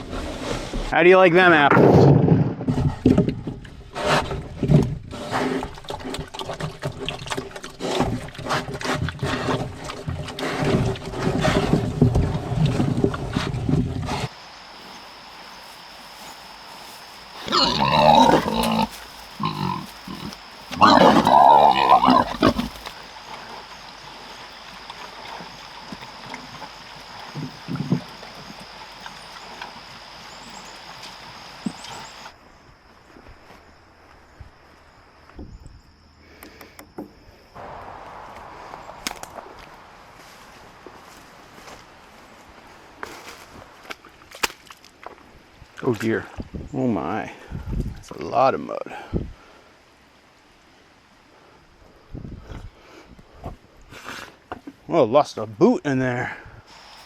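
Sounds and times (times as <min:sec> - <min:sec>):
pigs crunching food: 0:02.8 - 0:32.3, 0:38.7 - 0:45.3
pigs grunting: 0:03.9 - 0:32.3
loud animal calls: 0:14.2 - 0:23.8
steady high whine: 0:14.3 - 0:32.3, 0:37.6 - 0:42.8.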